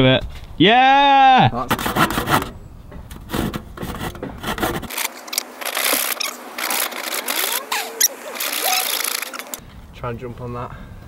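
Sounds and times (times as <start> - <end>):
wooden planks rubbing and knocking: 1.6 - 2.5, 3.1 - 9.6.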